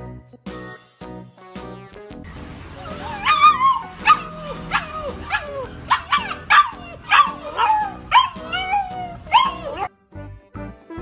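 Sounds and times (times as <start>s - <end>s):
music: 0.0s - 11.0s
dog yelping: 2.8s - 9.9s.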